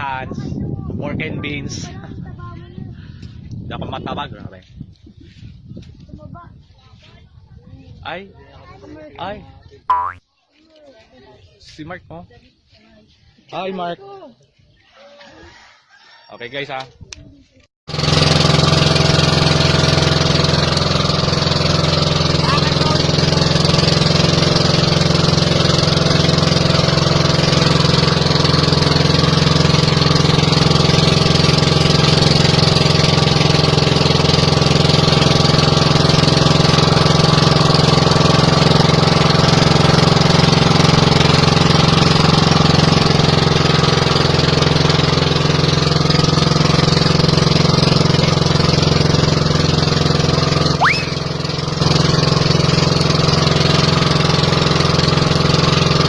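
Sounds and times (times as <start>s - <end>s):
boat engine running: 17.9s - 56.0s.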